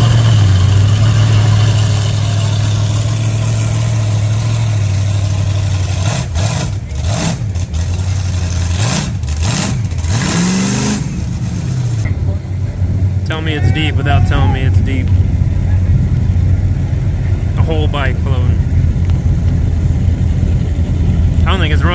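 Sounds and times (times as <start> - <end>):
vehicle engine revving: 0.0 - 21.9.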